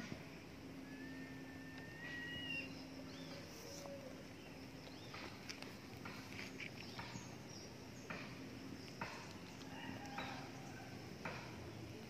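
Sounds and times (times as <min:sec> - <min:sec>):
faint low hum: 0:00.0 - 0:12.0
rising whistled bird note: 0:00.8 - 0:03.8.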